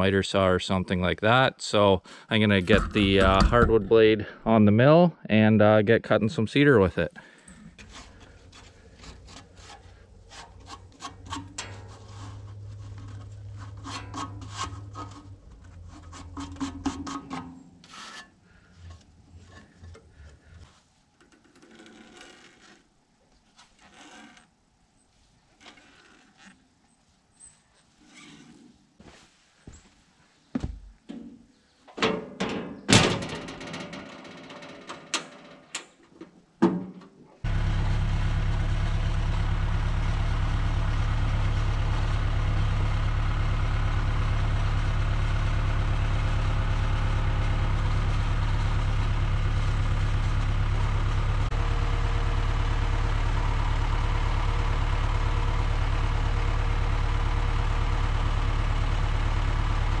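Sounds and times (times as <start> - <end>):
engine idling: 2.1 - 4.4, 7.0 - 17.4, 37.4 - 60.0
metal knocks and clanks: 2.5 - 4.2, 7.8 - 18.2, 31.1 - 36.0.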